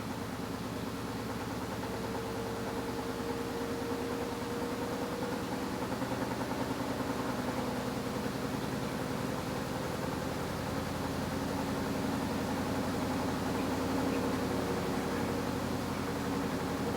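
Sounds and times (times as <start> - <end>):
washing machine motor humming: 11.7 - 16.9.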